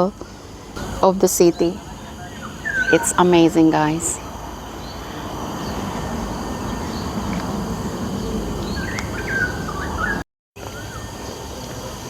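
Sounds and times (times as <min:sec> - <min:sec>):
steady low rumble: 0:00.0 - 0:10.0
faint high insect tones: 0:00.0 - 0:12.0
bird calling whistled notes: 0:01.5 - 0:04.2, 0:08.6 - 0:11.1.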